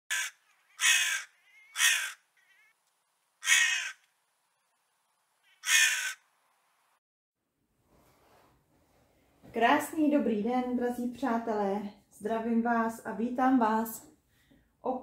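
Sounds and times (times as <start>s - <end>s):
bird harsh rasping calls: 0.1s - 2.8s, 3.4s - 4.1s, 5.4s - 6.2s.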